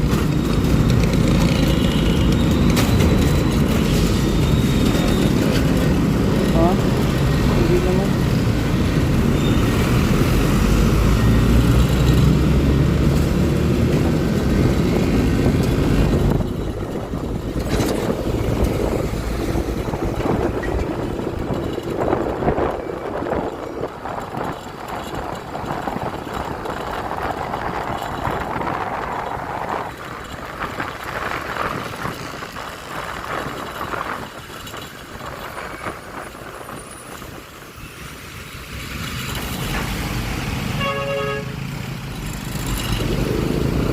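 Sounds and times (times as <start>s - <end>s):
heavy truck engine rumble: 0.0s - 43.9s
mixed traffic noise: 0.0s - 43.9s.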